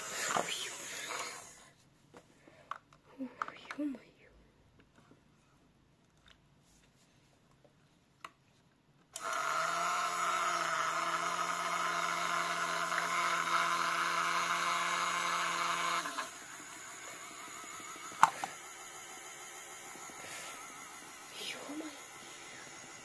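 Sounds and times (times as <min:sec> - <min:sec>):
electric appliance motor whining: 0:00.0 - 0:01.7, 0:09.2 - 0:23.0.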